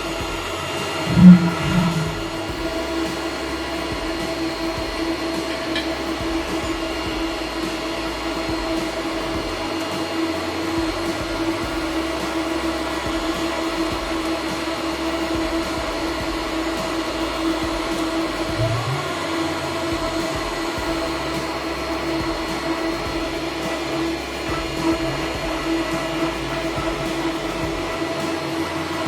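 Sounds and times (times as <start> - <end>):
machine hum: 0.0 - 29.0.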